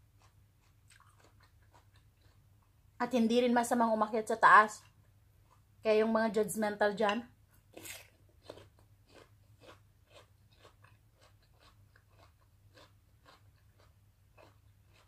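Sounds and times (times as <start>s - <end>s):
chewing crunchy food: 0.0s - 2.8s, 4.7s - 5.7s, 7.6s - 15.0s.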